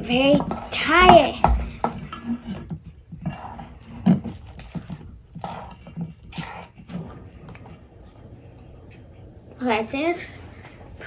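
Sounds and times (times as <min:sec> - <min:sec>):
sticky slime being stirred: 0:00.0 - 0:08.1.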